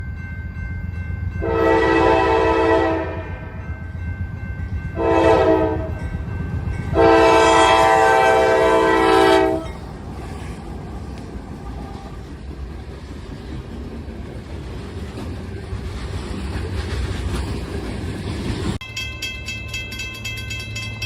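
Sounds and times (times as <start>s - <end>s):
train rumble: 0.0s - 21.0s
locomotive air horn blasts: 1.4s - 3.5s, 5.0s - 6.0s, 6.9s - 9.8s.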